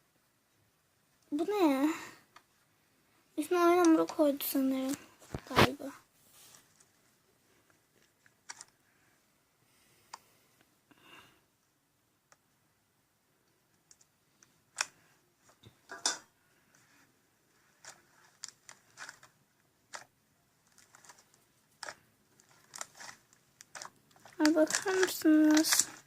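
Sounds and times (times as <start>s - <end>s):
slime clicking and crackling: 20.7s - 26.0s.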